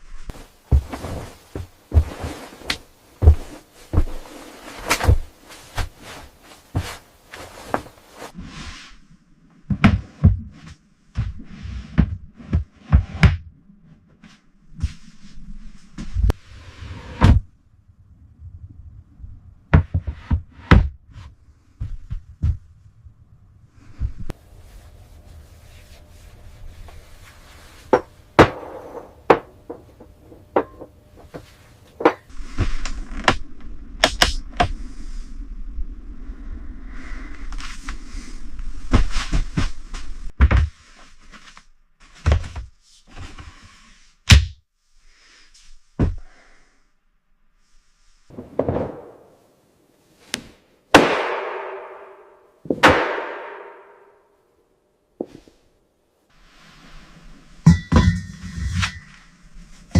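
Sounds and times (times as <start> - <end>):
irregular knocks and thuds: 0.3 - 8.0, 9.6 - 13.5, 19.7 - 22.8, 27.9 - 33.5, 46.0 - 46.3.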